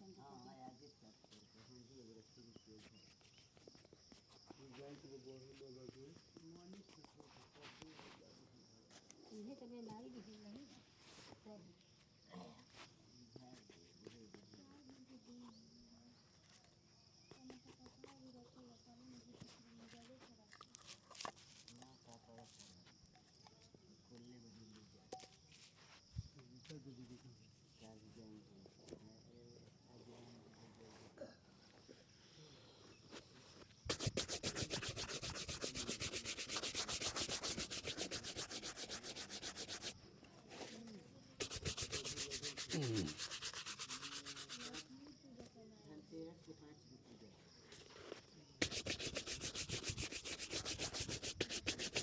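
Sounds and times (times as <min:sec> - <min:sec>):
shoe buffing strokes: 0:33.8 - 0:40.0, 0:41.4 - 0:44.9, 0:48.6 - 0:52.0
faint distant voices: 0:39.8 - 0:48.2.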